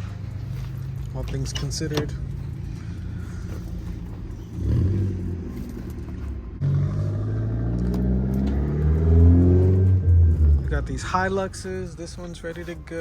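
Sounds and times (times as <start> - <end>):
vehicle engine accelerating: 2.2 - 11.0.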